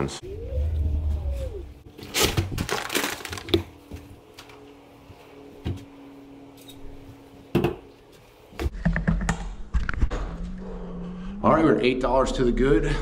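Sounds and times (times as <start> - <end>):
bags rustling and crinkling: 1.9 - 4.6.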